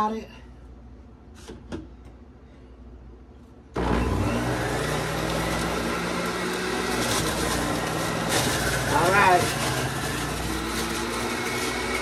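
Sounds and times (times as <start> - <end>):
juicer switch: 3.8 - 8.9
juicer motor running: 3.8 - 12.0.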